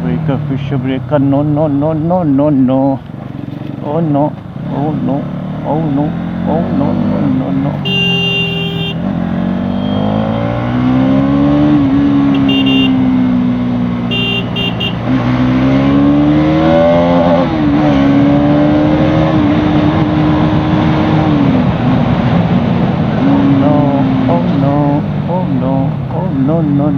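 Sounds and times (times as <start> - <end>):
motorcycle engine revving: 3.2 - 26.0
short high beeps: 7.8 - 9.0, 9.6 - 10.6, 12.4 - 13.0.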